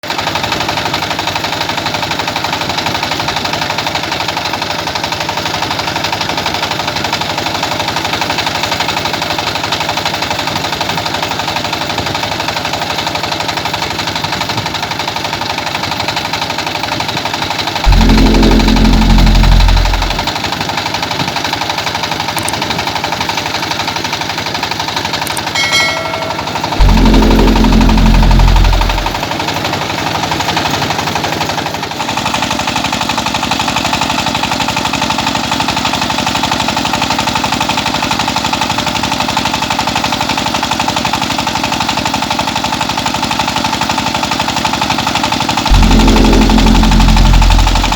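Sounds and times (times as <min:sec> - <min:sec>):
rice milling machine pulsing: 0:17.2 - 0:20.8, 0:25.0 - 0:29.9, 0:45.7 - 0:47.9
loud low hum: 0:17.8 - 0:20.4, 0:25.4 - 0:29.4, 0:45.7 - 0:47.9.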